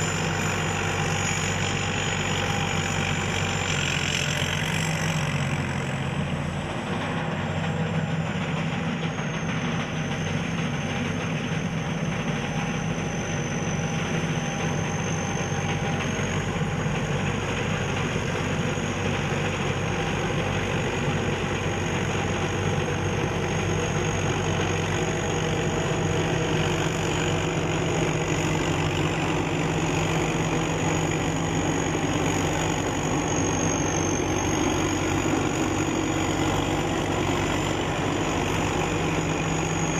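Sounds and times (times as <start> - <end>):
combine harvester engine running: 0.0 - 39.9
thin high whine: 0.0 - 39.9.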